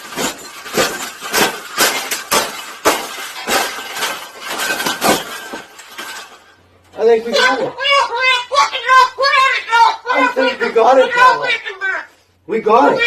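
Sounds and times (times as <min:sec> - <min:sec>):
brittle object smashing: 0:00.0 - 0:06.4.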